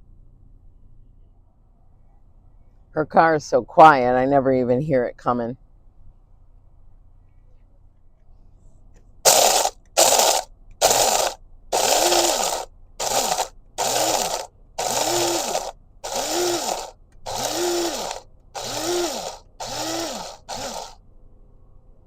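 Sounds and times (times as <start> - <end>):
electric coffee grinder pulses: 9.3 - 21.0.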